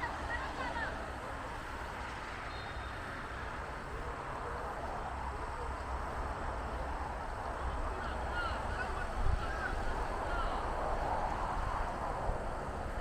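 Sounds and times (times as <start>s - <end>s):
distant voices and shouts: 7.5s - 11.4s.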